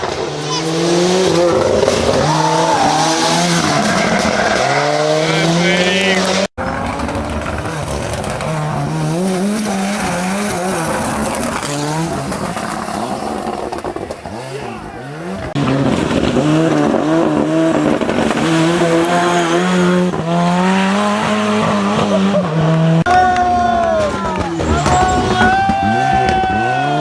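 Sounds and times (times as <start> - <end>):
rally car engine revving: 0.0 - 27.0.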